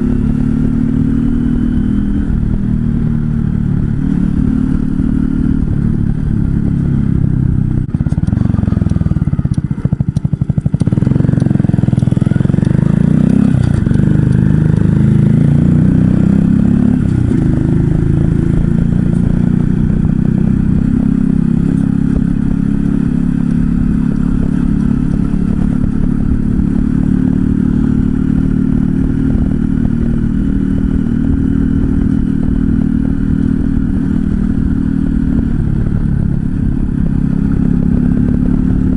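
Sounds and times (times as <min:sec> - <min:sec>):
motorcycle engine: 0:00.0 - 0:38.9
wind noise on microphone: 0:00.0 - 0:38.9.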